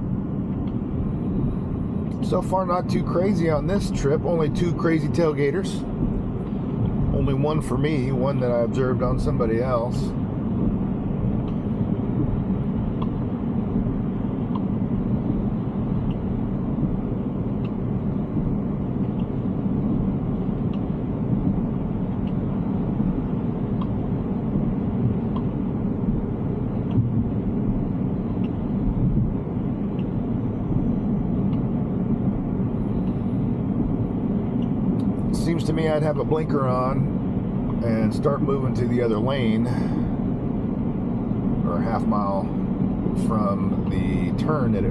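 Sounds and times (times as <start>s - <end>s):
road and tyre rumble: 0.0s - 44.9s
faint ticking: 10.6s - 30.4s.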